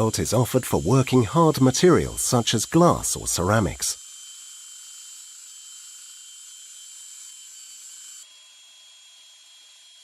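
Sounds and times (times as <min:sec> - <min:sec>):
belt sander whirring: 0:00.0 - 0:04.6.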